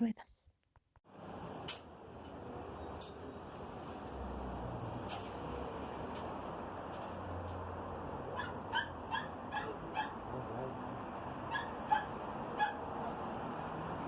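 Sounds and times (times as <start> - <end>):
dog yipping: 8.3 - 10.2, 11.5 - 12.8.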